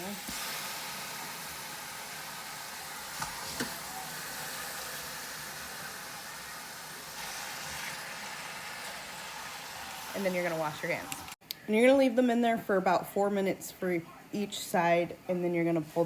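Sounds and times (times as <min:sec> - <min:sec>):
chicken sizzling in hot oil: 0:00.0 - 0:11.4.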